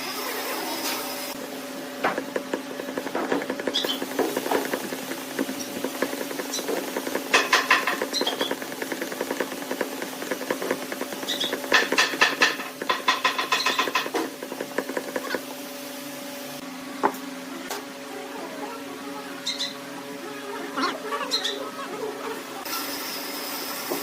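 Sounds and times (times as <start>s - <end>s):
lathe motor hum: 1.3s - 15.4s
rapid clattering of workpiece: 2.0s - 15.4s.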